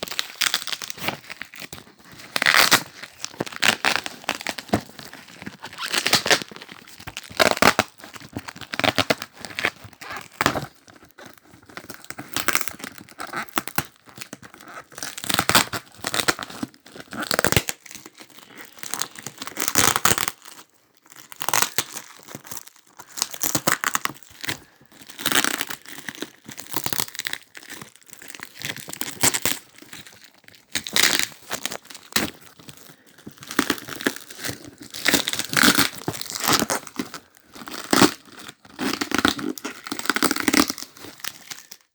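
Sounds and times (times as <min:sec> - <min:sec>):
wrapping tearing and crinkling: 0:00.0 - 0:41.9
tape ripping: 0:02.4 - 0:07.9.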